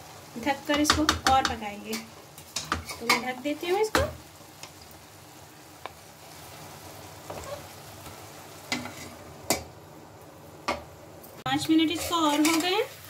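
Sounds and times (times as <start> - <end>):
greens sizzling in a pan: 0.0 - 13.0
spatula scraping and knocking pan: 0.6 - 4.2, 7.2 - 7.7, 8.7 - 9.7, 11.6 - 12.9.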